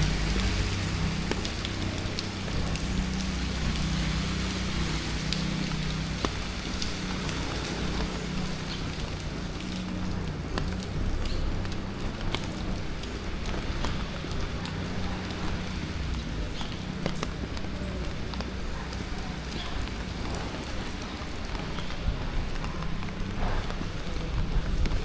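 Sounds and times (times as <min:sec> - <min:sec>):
low traffic hum: 0:00.0 - 0:25.0
rain falling on street: 0:00.0 - 0:25.0
ticks of raindrops: 0:00.0 - 0:25.0.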